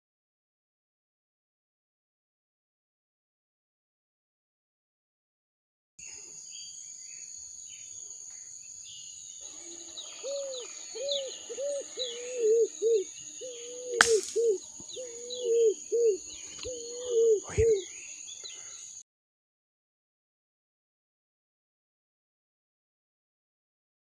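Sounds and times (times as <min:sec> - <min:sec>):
high insect drone: 0:06.0 - 0:19.0
small birds chirping: 0:06.0 - 0:19.0
dove cooing: 0:09.6 - 0:18.0
sharp click: 0:14.0 - 0:14.5.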